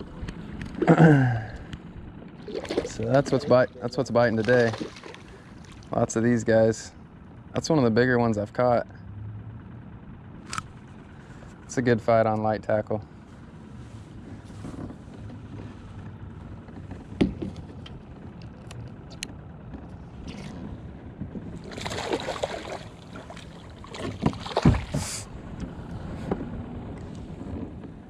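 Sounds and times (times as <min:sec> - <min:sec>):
water splashing: 0:02.4 - 0:05.9, 0:21.6 - 0:25.3.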